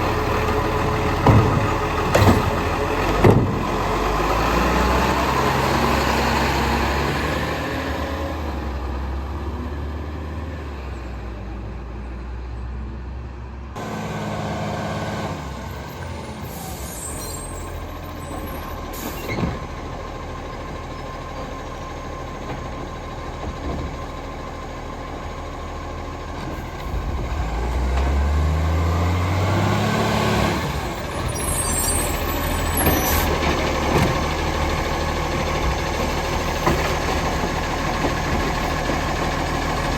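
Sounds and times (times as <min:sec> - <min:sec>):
garbage truck engine running: 0:00.0 - 0:10.2, 0:13.8 - 0:39.9
air brakes hissing: 0:16.3 - 0:19.4, 0:31.3 - 0:33.4.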